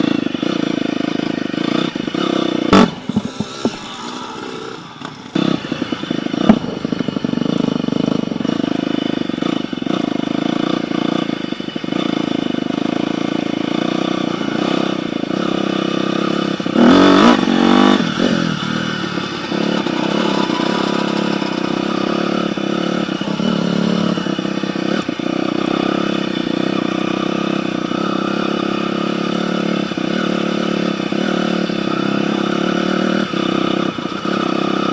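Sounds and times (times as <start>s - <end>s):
dirt bike engine running: 0.0s - 34.9s
sharp knocks: 2.7s - 4.0s.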